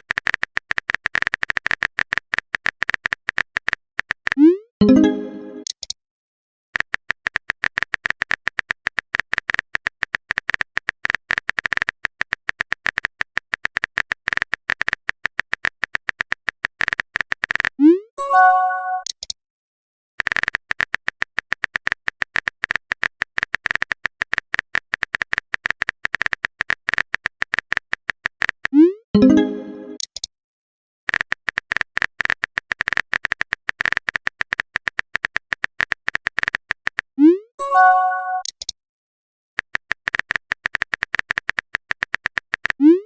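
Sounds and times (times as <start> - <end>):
rapid high typing clicks: 0.0 - 4.5, 6.8 - 17.8, 20.2 - 28.8, 31.1 - 37.1, 39.6 - 42.9
bright message chime: 4.8 - 5.7, 29.2 - 30.0.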